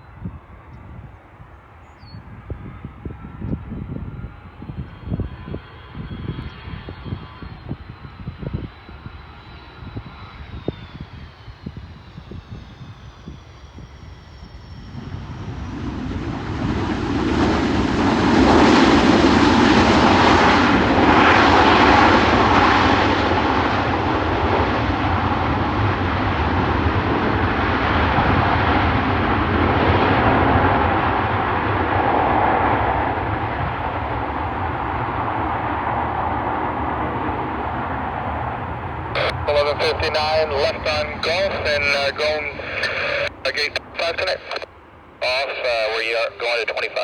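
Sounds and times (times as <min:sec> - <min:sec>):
jet engines roaring: 0:02.6 - 0:47.0
faint falling whine: 0:39.2 - 0:44.6.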